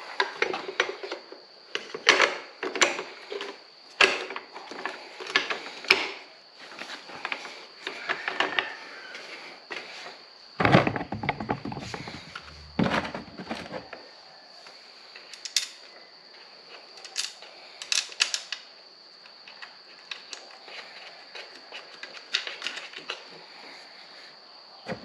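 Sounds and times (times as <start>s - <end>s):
rustling and knocking of wiring: 10.6s - 14.0s
light clicks of plastic and metal parts: 17.0s - 20.6s.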